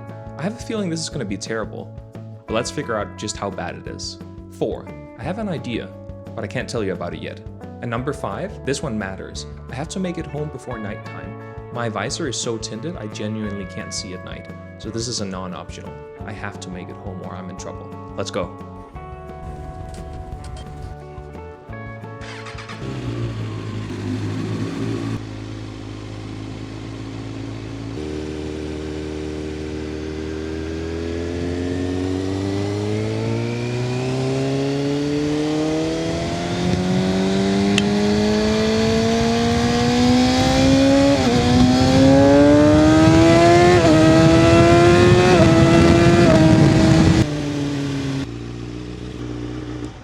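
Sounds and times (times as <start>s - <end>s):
motorcycle engine accelerating: 19.4s - 21.0s, 22.2s - 50.0s.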